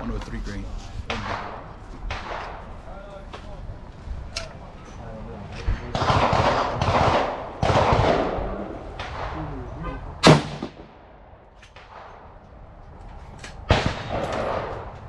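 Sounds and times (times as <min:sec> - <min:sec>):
rifle shots echoing: 0:01.1 - 0:02.9, 0:05.7 - 0:12.4, 0:13.6 - 0:15.0.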